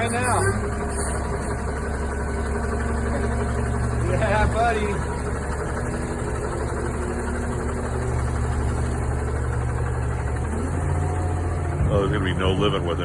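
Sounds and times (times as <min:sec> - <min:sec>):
garbage truck engine idling: 0:00.0 - 0:13.0.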